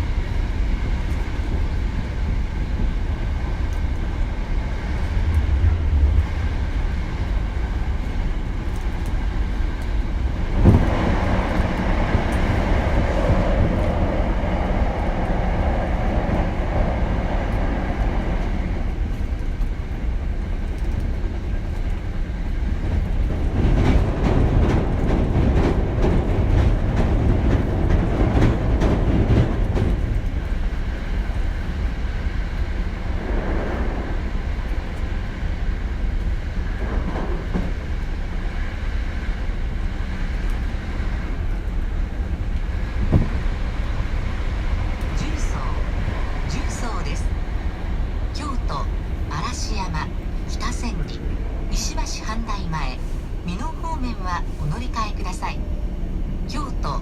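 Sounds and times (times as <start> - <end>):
train wheel-on-rail rumble: 0.0 - 57.0.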